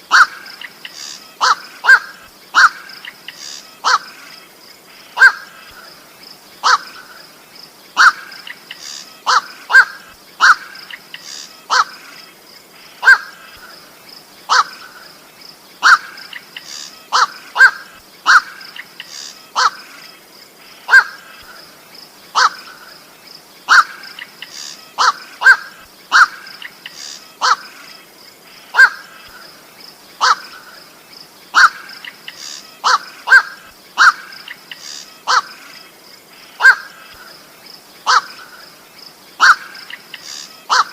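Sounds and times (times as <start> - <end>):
heron harsh calls: 3.8 - 4.1, 6.6 - 7.0, 9.2 - 10.8, 17.1 - 19.8, 22.3 - 22.7, 23.7 - 27.7, 28.7 - 29.1, 30.2 - 30.6, 31.5 - 35.6, 36.6 - 37.0, 38.0 - 38.5, 39.4 - 40.9.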